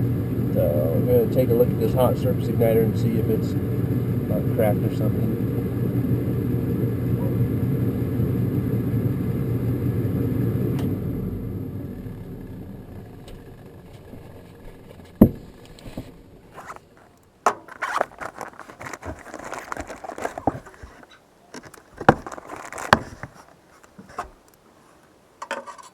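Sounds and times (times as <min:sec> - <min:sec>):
furnace motor humming: 0:00.0 - 0:25.7
light metallic clicks and rattles: 0:15.6 - 0:25.9.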